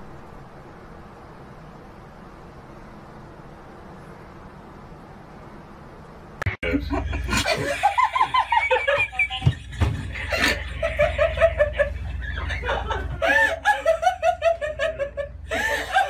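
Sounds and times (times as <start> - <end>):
steady low hum: 0.0 - 16.0
person laughing hard: 6.6 - 16.0.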